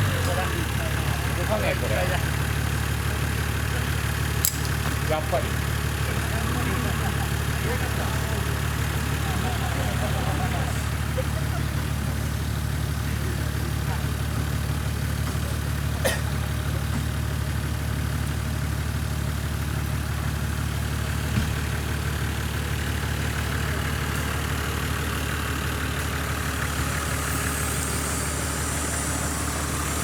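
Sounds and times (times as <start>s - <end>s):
car engine idling: 0.0s - 30.0s
hiss: 23.9s - 30.0s.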